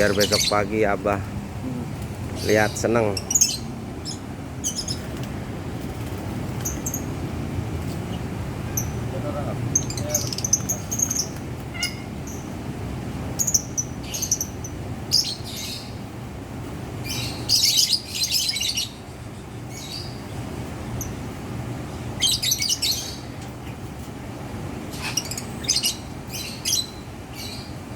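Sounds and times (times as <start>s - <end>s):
lovebirds chirping and chattering: 0.0s - 27.9s
low background hum: 0.0s - 27.9s.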